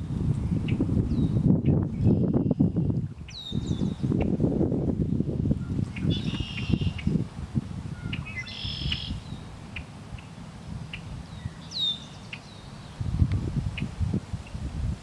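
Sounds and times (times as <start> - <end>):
birds singing: 0.5 - 4.4, 5.6 - 7.2, 8.0 - 13.1.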